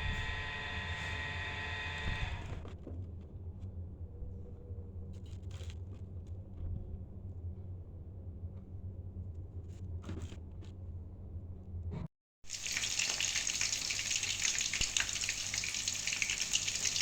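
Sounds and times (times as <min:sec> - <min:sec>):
chicken deep-frying in hot oil: 0:12.4 - 0:17.0.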